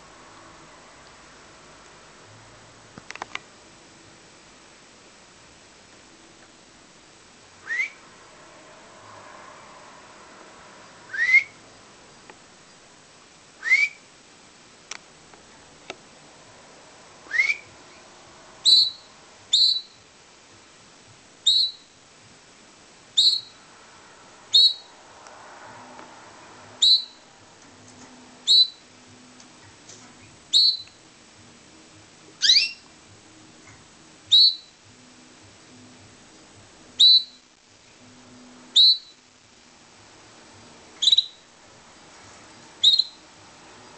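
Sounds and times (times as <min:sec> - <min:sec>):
canary chirping: 0:11.1 - 0:11.6, 0:17.3 - 0:20.1, 0:21.4 - 0:22.0, 0:23.1 - 0:23.6, 0:24.5 - 0:24.9, 0:26.8 - 0:27.3, 0:28.4 - 0:29.0, 0:30.2 - 0:31.0, 0:32.4 - 0:32.9, 0:34.3 - 0:34.8, 0:37.0 - 0:37.4, 0:38.7 - 0:39.2, 0:41.0 - 0:41.5, 0:42.8 - 0:43.3.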